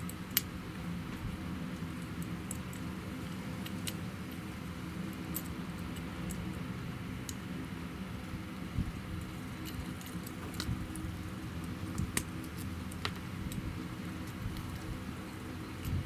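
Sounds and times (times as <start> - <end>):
fan humming: 0.0 - 16.0
clicks and taps handling wire: 9.2 - 15.0.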